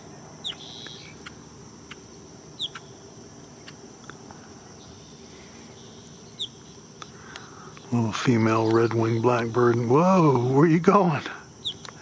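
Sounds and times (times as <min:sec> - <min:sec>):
bird chirp: 0:00.0 - 0:03.8, 0:04.6 - 0:10.6, 0:11.6 - 0:12.0
high-pitched insect drone: 0:00.0 - 0:12.0
faint ticks: 0:07.0 - 0:09.0, 0:09.6 - 0:09.9, 0:11.2 - 0:12.0.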